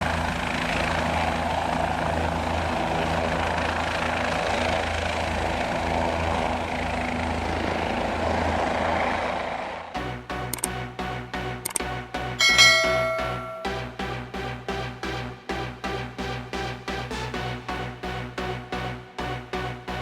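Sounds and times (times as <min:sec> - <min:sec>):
helicopter rotor and engine drone: 0:00.0 - 0:10.7.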